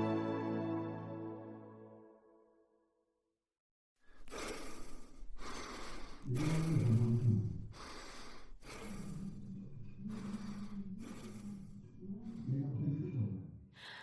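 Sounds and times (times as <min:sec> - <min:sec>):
breath-like rushes of noise: 0:04.1 - 0:12.5.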